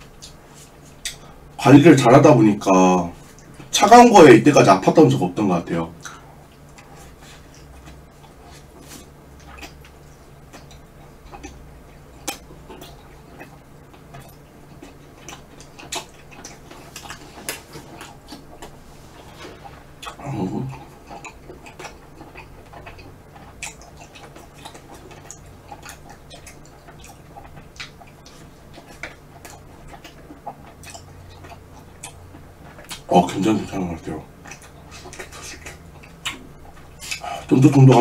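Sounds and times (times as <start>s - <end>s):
wet chewing sounds: 0.0s - 2.1s, 5.9s - 38.0s
person humming: 20.2s - 20.8s.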